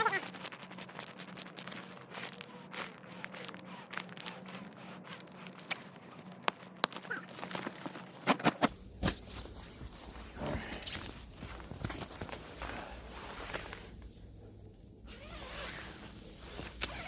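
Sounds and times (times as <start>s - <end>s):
gear rustling and crunching in snow: 15.1s - 17.0s.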